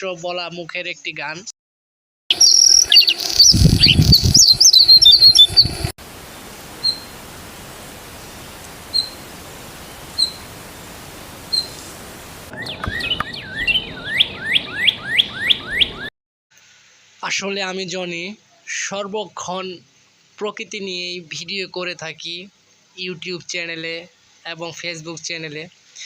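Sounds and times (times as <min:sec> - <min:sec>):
bird calls sweeping downward: 0:02.3 - 0:05.9, 0:06.8 - 0:07.1, 0:08.2 - 0:09.2, 0:09.9 - 0:10.5, 0:11.5 - 0:11.9, 0:12.5 - 0:16.1
birds chirping and calling: 0:02.3 - 0:05.9, 0:06.8 - 0:07.1, 0:08.1 - 0:10.5, 0:11.4 - 0:16.1
steady hiss: 0:05.2 - 0:12.5, 0:16.5 - 0:26.0.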